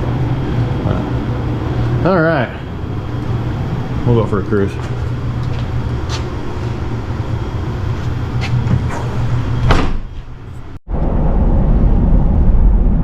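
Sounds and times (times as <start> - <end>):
sharp clunks: 8.7 - 10.2.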